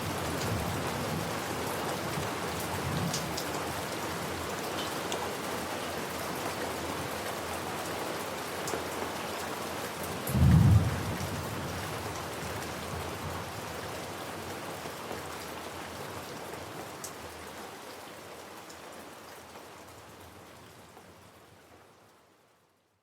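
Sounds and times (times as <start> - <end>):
steady rain falling: 0.0 - 23.0
thunder rumble: 10.4 - 11.5.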